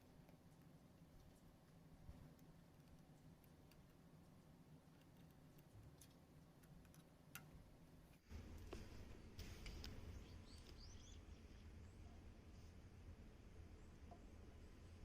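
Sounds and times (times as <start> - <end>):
faint clicks: 0.0 - 8.8
faint low rumble: 0.0 - 15.0.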